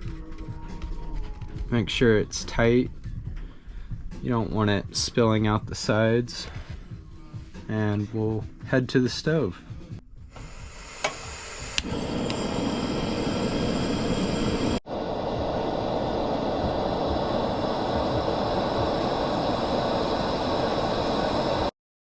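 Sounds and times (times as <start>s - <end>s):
gas stove burner roaring: 10.3s - 21.7s.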